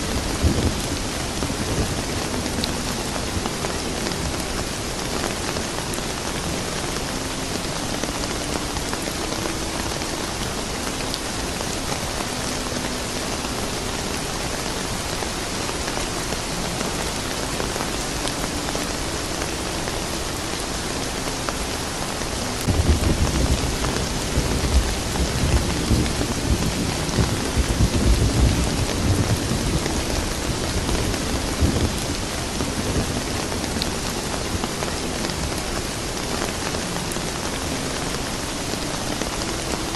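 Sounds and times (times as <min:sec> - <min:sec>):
soft rain falling: 0:00.0 - 0:39.9
deep thunder rumble: 0:22.6 - 0:34.0.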